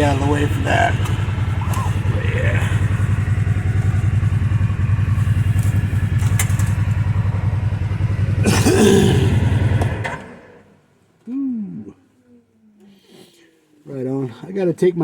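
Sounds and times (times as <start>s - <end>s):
engine idling with fast pulsing: 0.0s - 10.6s.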